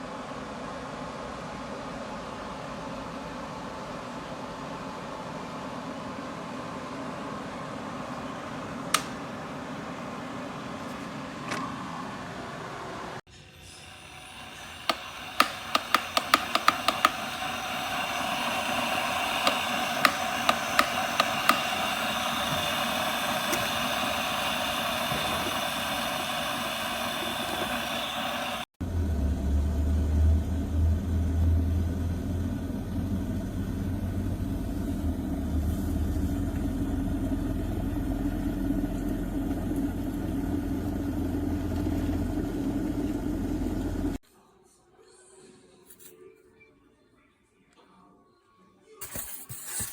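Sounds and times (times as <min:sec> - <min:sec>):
kettle low rumble: 0:01.0 - 0:44.2
kettle hissing: 0:02.3 - 0:28.8, 0:32.6 - 0:44.2, 0:49.0 - 0:49.9
kettle ticking: 0:08.1 - 0:09.9, 0:13.8 - 0:28.7.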